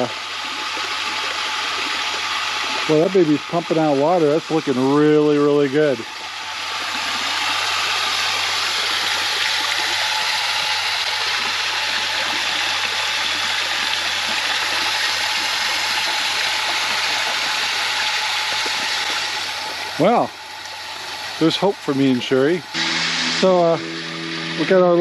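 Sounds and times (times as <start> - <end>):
fountain water splashing into pond: 0.0 - 25.0.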